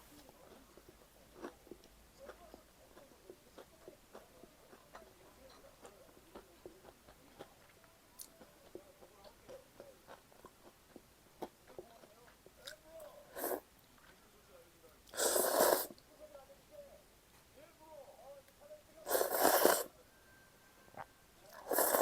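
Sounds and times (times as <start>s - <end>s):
close chewing with mouth clicks: 0.2s - 12.8s.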